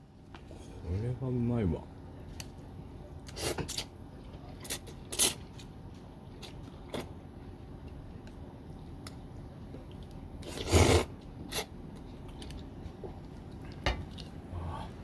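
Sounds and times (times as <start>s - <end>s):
person slurping noodles: 10.4s - 11.7s.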